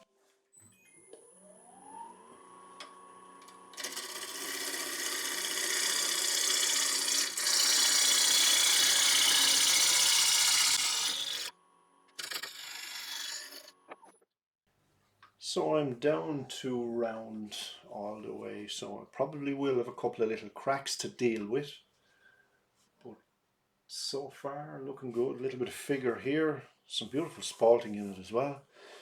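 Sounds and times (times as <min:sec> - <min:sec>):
wood lathe motor whining: 0:01.1 - 0:11.5, 0:12.2 - 0:13.7
gouge cutting spinning wood: 0:03.8 - 0:11.5, 0:12.2 - 0:13.7.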